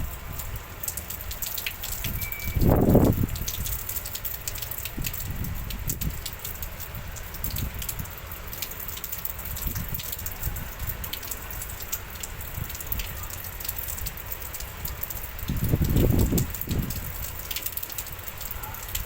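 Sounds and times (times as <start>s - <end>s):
wind gusts rumbling: 0.0s - 4.0s, 4.8s - 8.2s, 14.8s - 17.6s
rain hissing with drop ticks: 0.0s - 19.0s.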